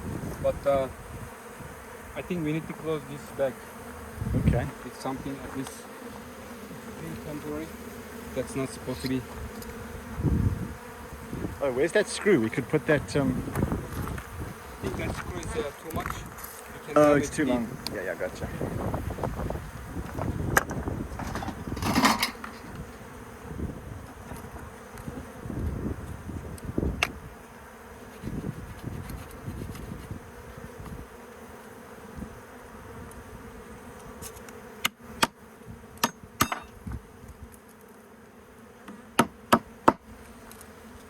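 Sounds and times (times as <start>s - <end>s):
bees buzzing: 0.0s - 41.0s.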